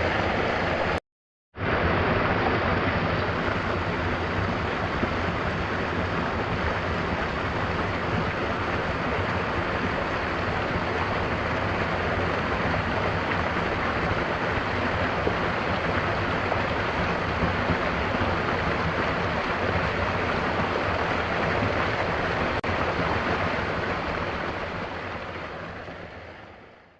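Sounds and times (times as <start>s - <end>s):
waterfall pouring: 1.7s - 26.5s.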